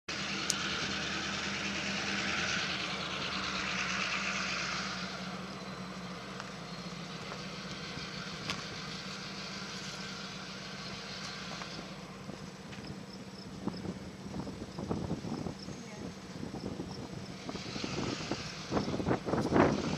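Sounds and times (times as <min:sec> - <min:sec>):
train engine hum: 0:00.1 - 0:19.9
wheel and rail hiss: 0:06.0 - 0:13.9.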